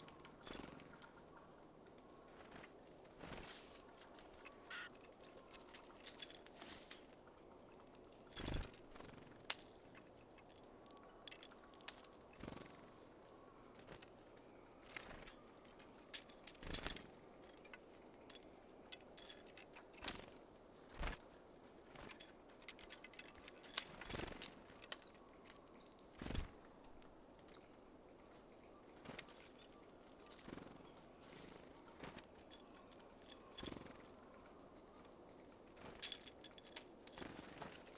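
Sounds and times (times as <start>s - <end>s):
birds tapping at seeds: 0.0s - 37.9s
high thin bird calls: 4.4s - 5.1s.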